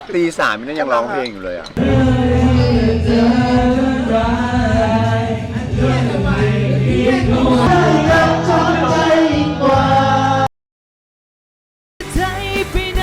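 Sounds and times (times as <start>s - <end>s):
person singing: 1.8s - 10.5s
steady bass accompaniment: 1.8s - 10.5s.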